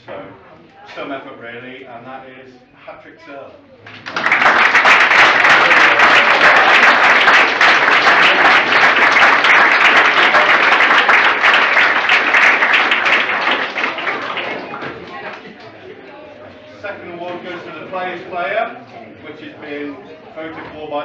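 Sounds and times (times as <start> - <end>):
audience applause: 3.9 - 15.7.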